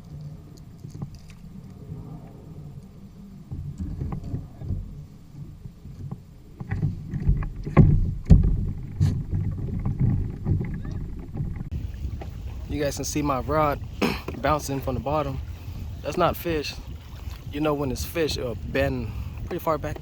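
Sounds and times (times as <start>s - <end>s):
water sloshing against kayak hull: 0.0s - 20.0s
thumps on kayak hull: 3.5s - 12.4s.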